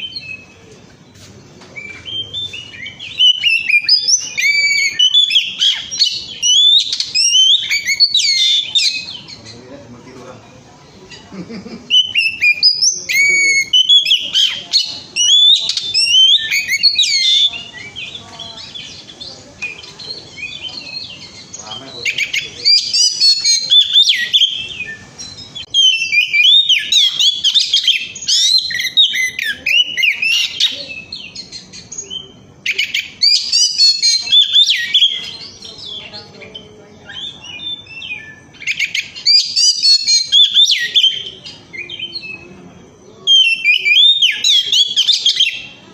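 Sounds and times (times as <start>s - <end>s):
bird whistling song: 0.0s - 0.6s, 1.8s - 9.7s, 11.9s - 42.6s, 43.2s - 45.8s.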